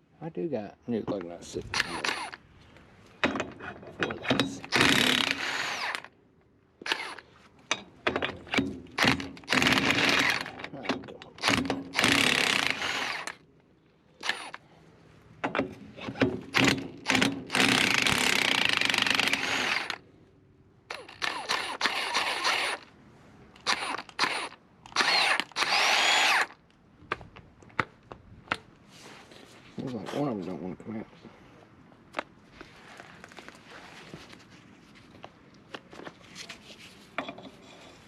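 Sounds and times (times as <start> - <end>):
power tool bursts: 1.8 - 2.4, 4.6 - 6.1, 9.0 - 10.5, 11.4 - 13.4, 16.5 - 20.0, 20.9 - 22.8, 23.6 - 26.5.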